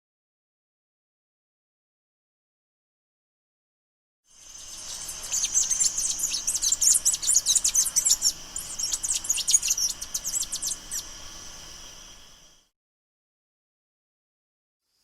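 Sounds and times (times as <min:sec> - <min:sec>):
small birds chirping: 0:04.4 - 0:12.6.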